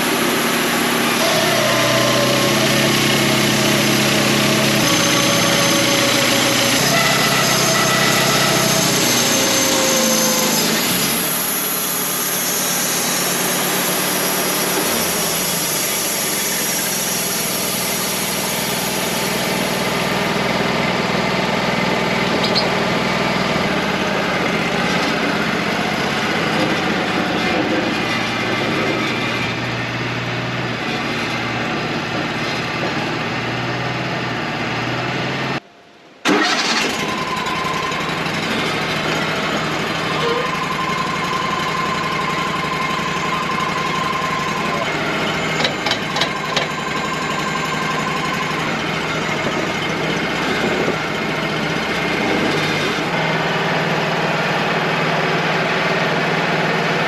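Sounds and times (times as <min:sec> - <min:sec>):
band sawmill running: 0:00.0 - 0:35.6, 0:36.2 - 0:57.0.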